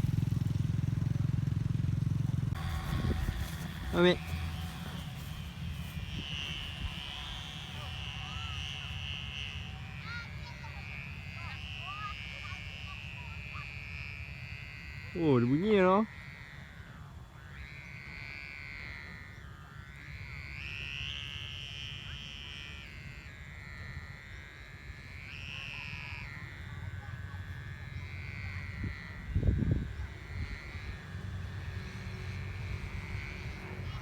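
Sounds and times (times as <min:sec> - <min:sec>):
wind rumble on microphone: 0:00.0 - 0:09.8, 0:24.8 - 0:34.0
kite hummer whining in wind: 0:00.0 - 0:34.0.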